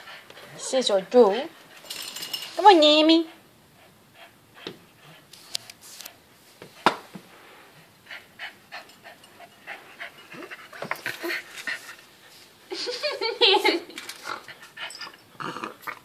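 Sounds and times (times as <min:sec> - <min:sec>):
dog panting: 0:00.0 - 0:02.0, 0:02.6 - 0:05.4, 0:07.8 - 0:12.6.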